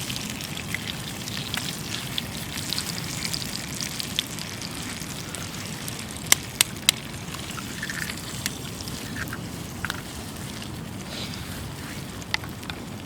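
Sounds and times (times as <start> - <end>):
campfire crackling: 0.0 - 13.0
fire popping: 0.0 - 13.0.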